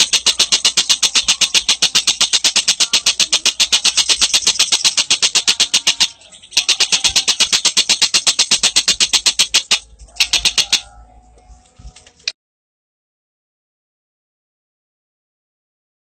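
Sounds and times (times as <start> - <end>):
bird calling in fast runs: 0.0 - 10.9.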